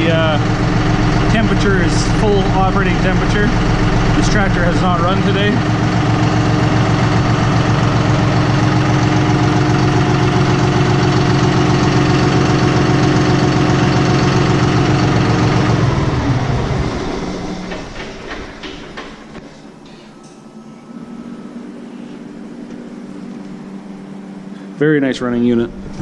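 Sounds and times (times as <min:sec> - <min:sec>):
tractor diesel engine idling: 0:00.0 - 0:19.3.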